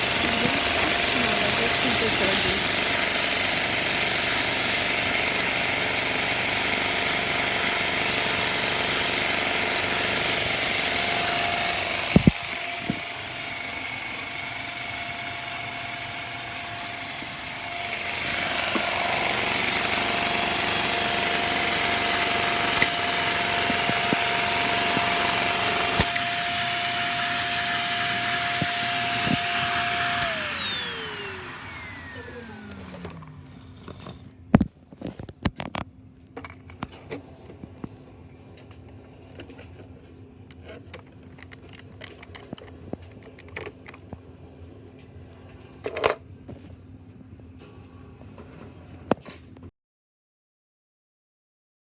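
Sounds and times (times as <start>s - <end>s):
vacuum engine whining and rattling: 0.0s - 35.8s.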